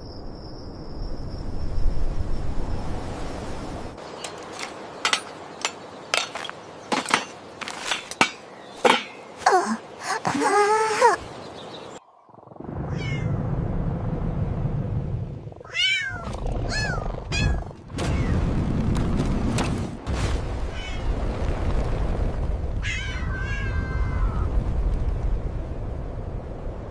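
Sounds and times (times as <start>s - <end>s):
steady low rumble: 12.0s - 19.5s
cat meowing: 15.7s - 18.3s, 22.8s - 24.4s.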